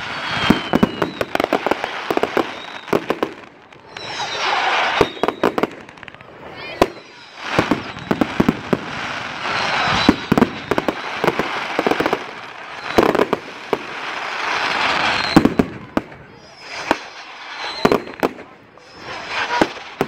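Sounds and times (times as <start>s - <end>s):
fireworks bangs: 0.0s - 20.0s
crackling hiss of bursting shells: 6.8s - 20.0s.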